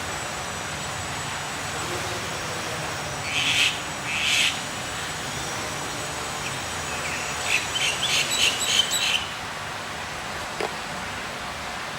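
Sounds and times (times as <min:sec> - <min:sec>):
steady hiss: 0:00.0 - 0:11.9
small bird chirping: 0:06.4 - 0:09.4.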